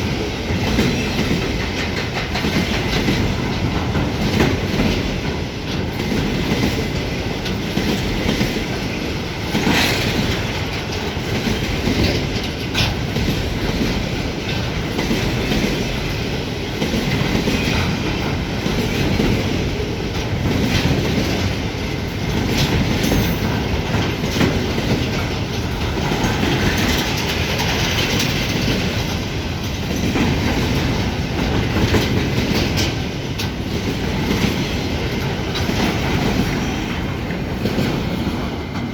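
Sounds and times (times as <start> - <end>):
train wheels rumbling on rail: 0.0 - 38.9
wheels clicking over rail joints: 0.0 - 38.9.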